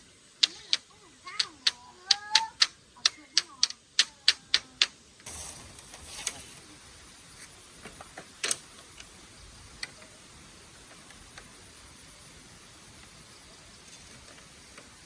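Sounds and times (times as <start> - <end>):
low steady hiss: 0.0 - 15.0
sharp clicks and snaps: 0.4 - 5.0.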